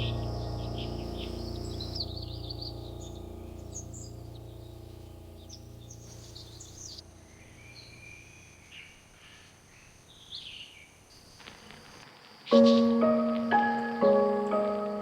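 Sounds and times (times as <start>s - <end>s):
low steady tones: 0.0s - 8.7s.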